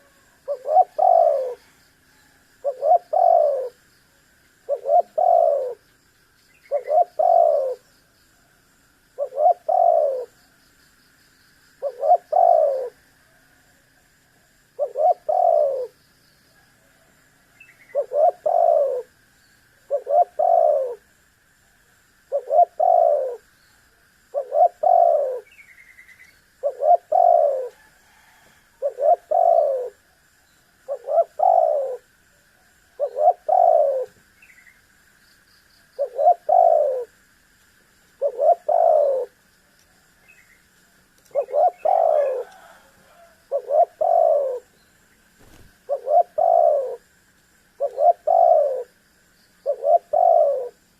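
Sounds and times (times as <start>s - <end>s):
dove cooing: 0.0s - 1.8s, 2.6s - 3.9s, 4.6s - 5.8s, 6.6s - 7.9s, 9.2s - 10.4s, 11.8s - 13.0s, 14.7s - 16.0s, 17.6s - 19.1s, 19.8s - 21.1s, 22.3s - 23.5s, 24.3s - 25.6s, 26.6s - 30.1s, 30.8s - 32.2s, 32.8s - 34.2s, 36.0s - 37.2s, 38.2s - 39.4s, 41.2s - 44.7s, 45.4s - 47.2s, 47.8s - 49.0s, 49.6s - 50.8s.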